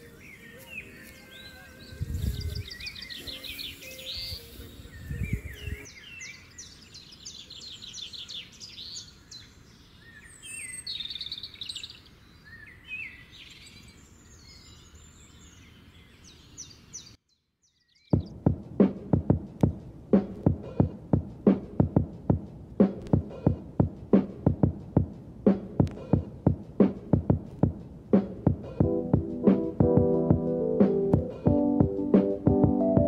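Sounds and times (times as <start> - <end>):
wild birds chirping: 0.0 - 18.5
music with drum machine beat: 18.2 - 33.0.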